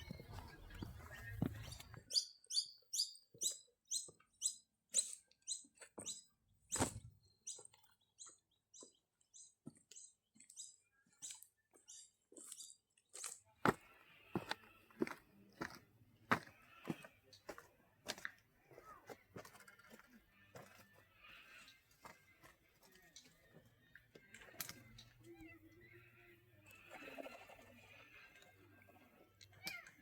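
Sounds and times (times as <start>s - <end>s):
bird chirping: 0.0s - 13.4s.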